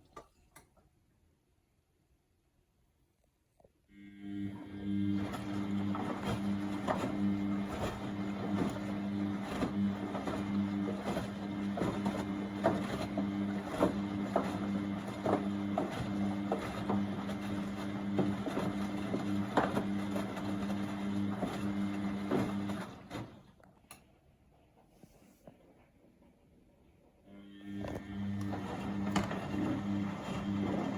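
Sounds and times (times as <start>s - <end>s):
washing machine motor hum: 3.9s - 23.7s, 26.8s - 30.9s
laundry knocking and sloshing: 5.0s - 23.5s, 27.8s - 30.9s.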